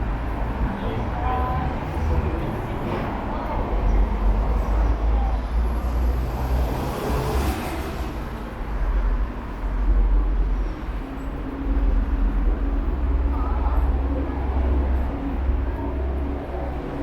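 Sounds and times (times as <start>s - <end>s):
traffic rumble: 0.0s - 17.0s
passing vehicle hiss: 5.7s - 8.5s.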